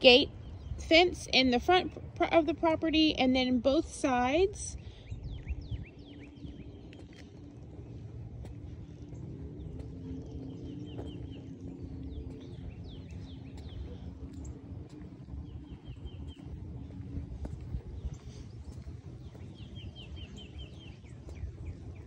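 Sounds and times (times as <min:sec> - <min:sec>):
birds chirping: 0:00.0 - 0:22.0
steady low hum: 0:00.0 - 0:22.0
low rumble: 0:04.7 - 0:22.0.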